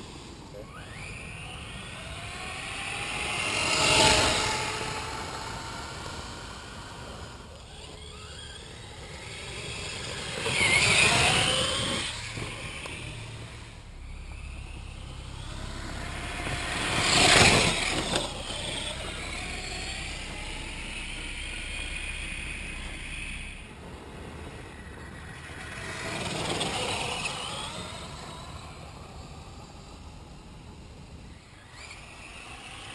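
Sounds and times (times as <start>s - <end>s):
electric motor whining: 0.7s - 24.4s.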